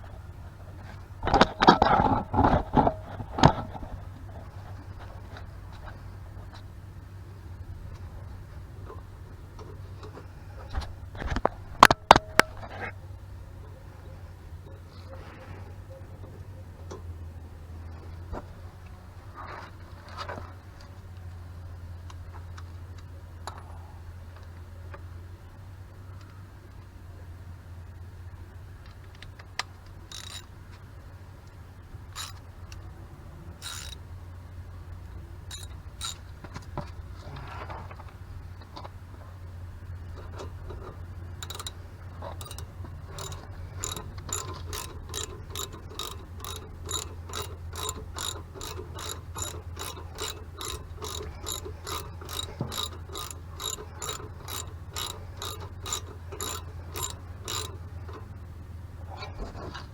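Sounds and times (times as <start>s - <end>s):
steady low hum: 0.0s - 59.9s
ratchet wrench clicking: 30.1s - 30.5s, 32.1s - 32.4s, 33.6s - 34.0s, 35.5s - 36.3s, 40.3s - 58.2s.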